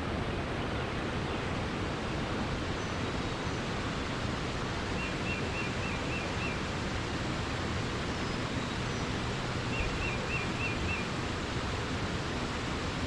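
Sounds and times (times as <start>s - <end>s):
flowing water: 0.0s - 13.0s
small bird singing: 9.7s - 11.1s.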